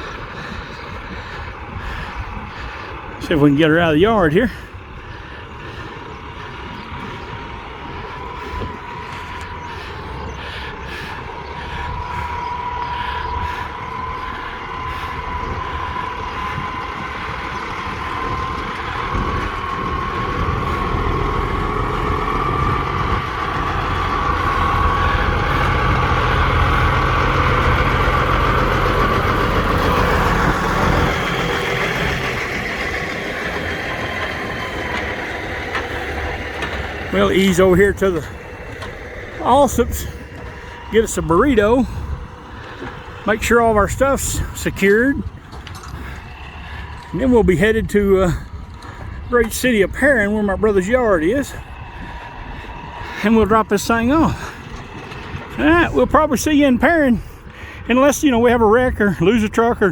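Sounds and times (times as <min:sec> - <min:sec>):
tow truck engine pulling away: 0:00.0 - 0:59.9
rising whine: 0:06.7 - 0:47.6.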